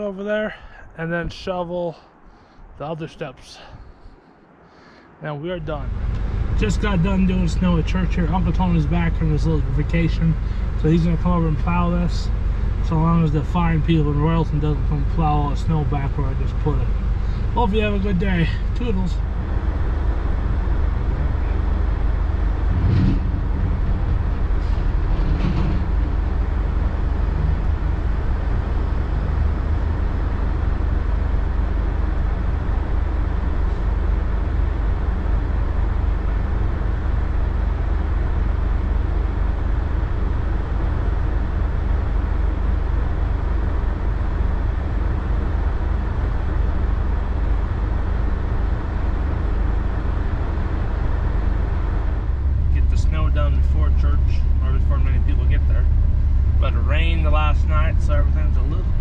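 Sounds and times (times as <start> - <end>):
vehicle engine rumble: 0.0 - 59.0.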